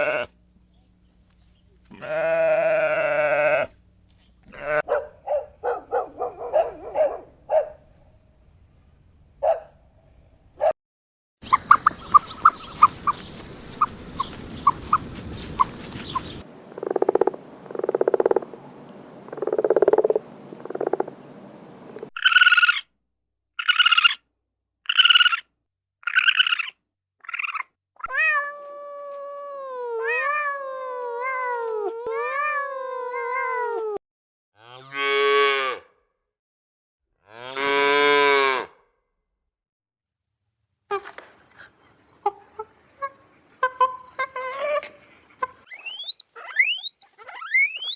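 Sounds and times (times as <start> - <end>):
animal calls: 0.0 - 0.3, 42.6 - 47.9.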